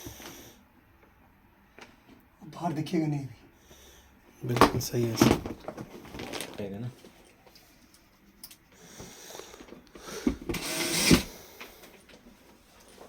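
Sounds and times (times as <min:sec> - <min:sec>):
small power tool motor: 0:10.5 - 0:11.5.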